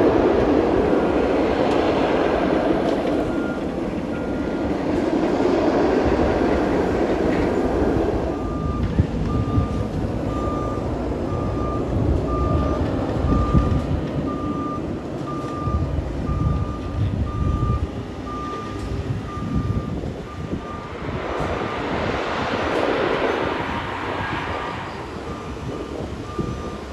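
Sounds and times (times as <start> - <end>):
diesel engine rumble: 0.0 - 26.9
reversing alarm beeps: 3.0 - 4.8, 8.3 - 21.0, 24.7 - 26.9.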